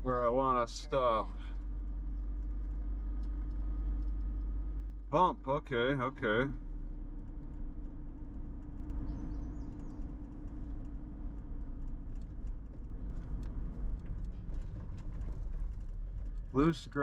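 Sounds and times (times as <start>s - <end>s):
tyres rolling over gravel: 11.9s - 17.0s.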